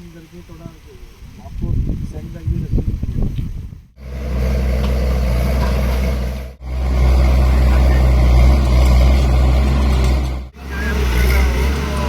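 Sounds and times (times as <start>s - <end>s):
engine idling: 4.0s - 12.0s.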